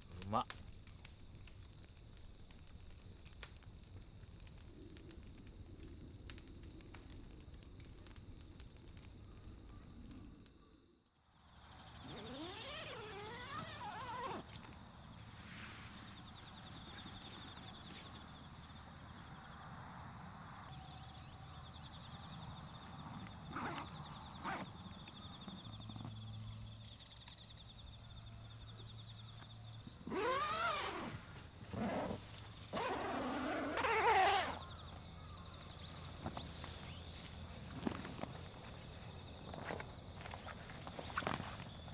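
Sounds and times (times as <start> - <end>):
insects chirping: 0.0 - 41.9
wild animal call rising and wavering: 11.8 - 14.6.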